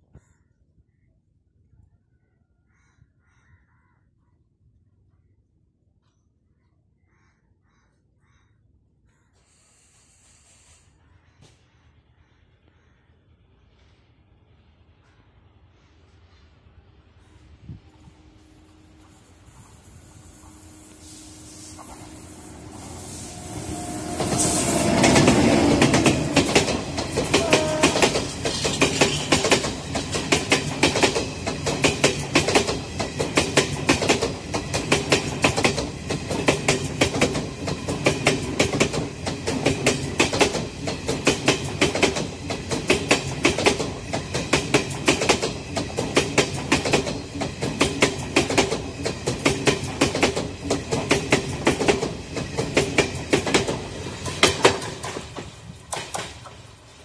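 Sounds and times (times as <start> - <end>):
electric locomotive passing: 12.4 - 57.0
train wheels clattering over rail joints: 24.0 - 57.0.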